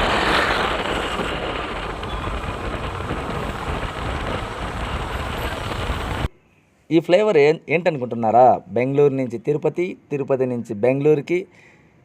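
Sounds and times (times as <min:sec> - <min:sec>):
scooter road noise: 0:00.0 - 0:06.3
wind rushing over microphone: 0:00.0 - 0:06.3.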